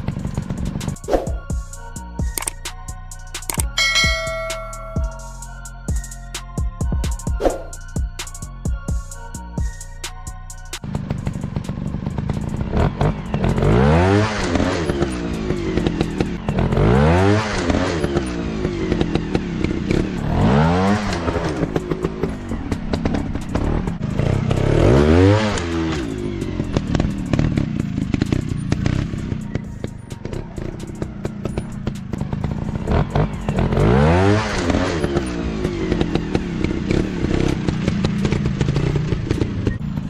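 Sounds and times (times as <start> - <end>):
dirt bike engine revving: 0.0 - 1.4, 10.8 - 40.0.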